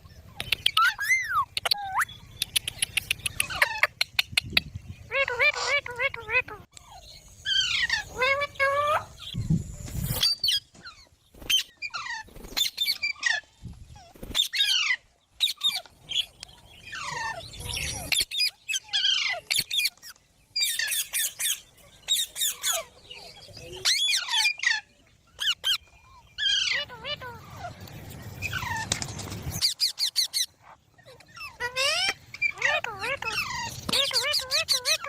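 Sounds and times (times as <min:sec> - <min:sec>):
parrots squawking: 0:00.5 - 0:04.2, 0:05.1 - 0:09.4, 0:16.9 - 0:23.0, 0:23.8 - 0:27.8, 0:29.6 - 0:35.0.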